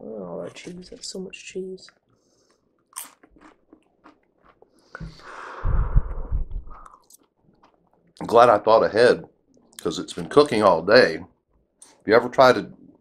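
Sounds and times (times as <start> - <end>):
chip crunching and chewing: 2.4 - 4.8, 6.9 - 8.0
mouth clicks: 6.0 - 8.2.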